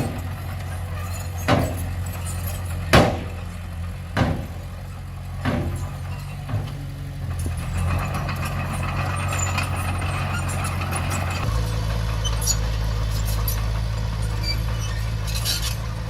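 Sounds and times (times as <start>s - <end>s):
bulldozer diesel engine running: 0.0s - 16.0s
loud metallic clatter: 0.0s - 16.0s
sharp metal clanks: 1.0s - 3.5s.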